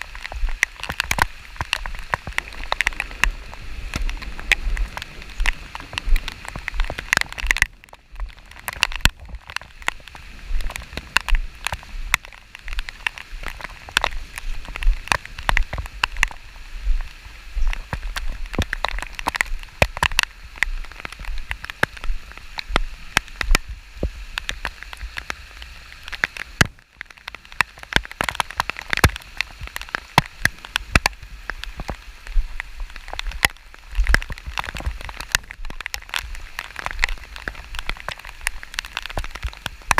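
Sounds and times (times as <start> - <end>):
rain drops tapping: 0.0 - 39.9
wind rumble on microphone: 0.0 - 39.9.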